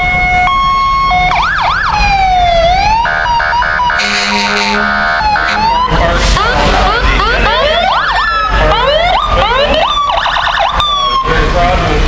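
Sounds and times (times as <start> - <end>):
electronic siren yelping and wailing: 0.0 - 11.3
short horn blasts: 4.0 - 5.8.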